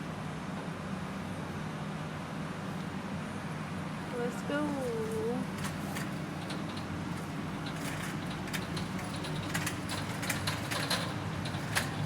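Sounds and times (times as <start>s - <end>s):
light clicks and rattles: 5.1s - 12.0s.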